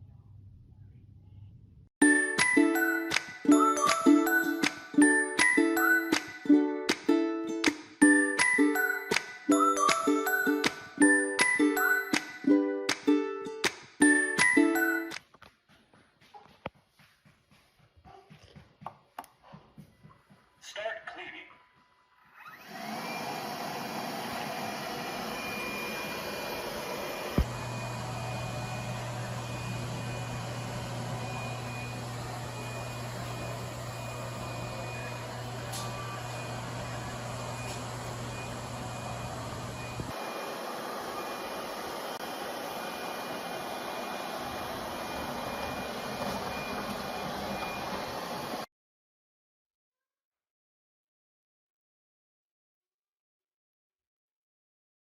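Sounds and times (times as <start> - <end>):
robot vacuum whirring: 22.4 - 48.7.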